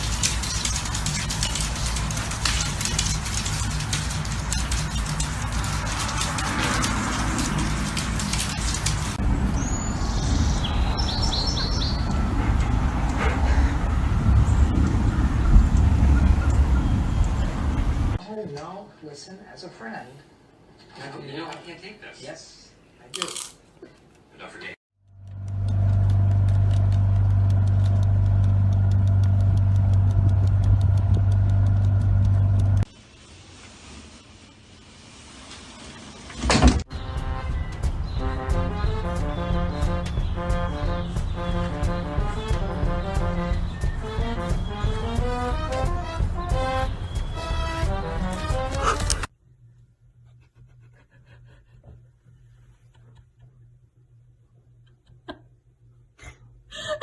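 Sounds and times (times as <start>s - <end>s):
bird chirping: 9.5s - 12.3s, 46.8s - 47.7s
low machine hum: 25.1s - 32.9s
low steady rumble: 25.1s - 32.9s.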